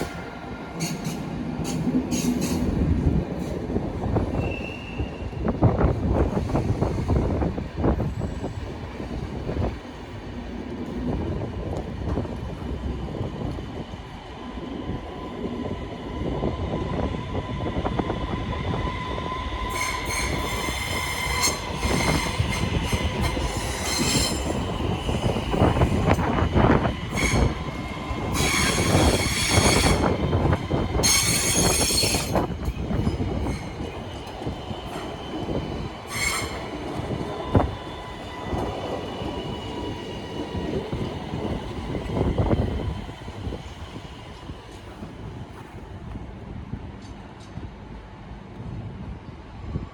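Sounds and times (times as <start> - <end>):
train wheels rumbling on rails: 0.0 - 49.9
steel wheels squealing: 0.8 - 2.7, 4.3 - 5.3, 19.1 - 44.0.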